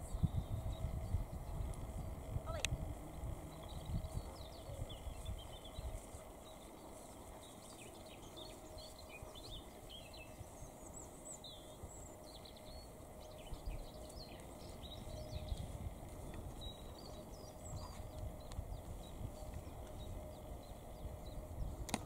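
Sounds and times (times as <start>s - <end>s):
low uneven rumble: 0.0s - 22.0s
small birds chirping: 0.0s - 22.0s.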